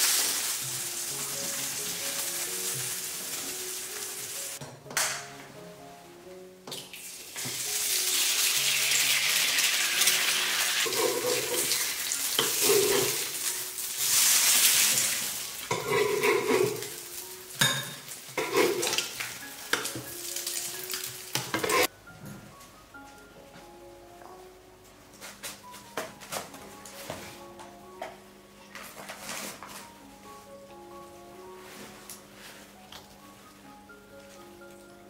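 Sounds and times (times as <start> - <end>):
food sizzling in hot oil: 0.0 - 4.6, 6.9 - 21.9
utensil scraping a pan: 15.7 - 16.9, 18.4 - 19.0, 21.4 - 21.9.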